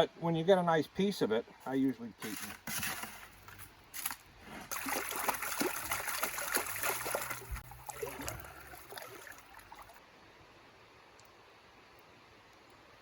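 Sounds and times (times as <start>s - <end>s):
water splashing in a pan: 4.6s - 10.0s.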